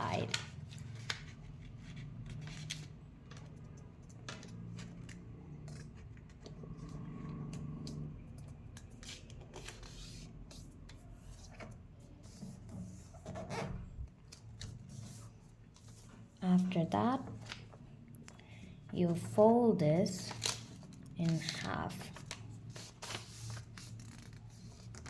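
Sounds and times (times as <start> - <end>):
paper rustling and crinkling: 0.0 - 6.6, 8.5 - 16.3, 20.1 - 25.0.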